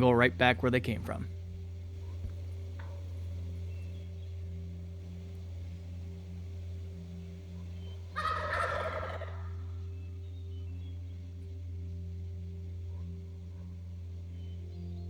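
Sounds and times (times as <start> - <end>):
steady low hum: 0.0 - 8.2, 9.4 - 15.0
turkey gobbling: 7.6 - 9.8.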